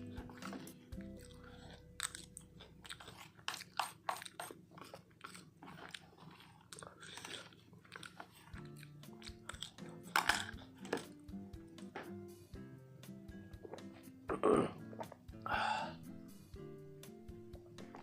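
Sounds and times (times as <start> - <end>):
crunchy snack being chewed: 0.0 - 11.3.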